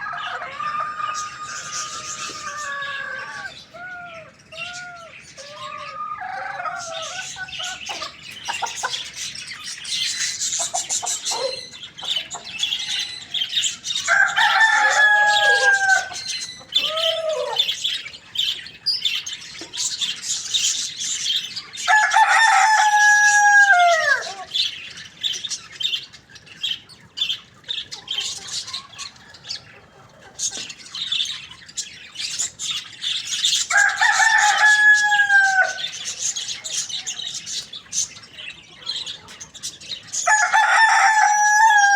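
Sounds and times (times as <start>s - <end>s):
rooster crowing: 0.0s - 3.7s, 5.0s - 7.5s, 12.6s - 17.8s, 21.8s - 24.5s, 33.7s - 36.0s, 40.2s - 41.9s
high-pitched bird chirping: 6.8s - 14.1s, 14.8s - 21.7s.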